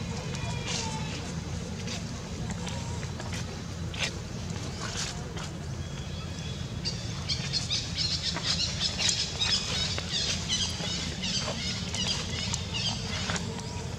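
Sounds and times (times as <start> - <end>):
birds chirping: 5.8 - 13.9.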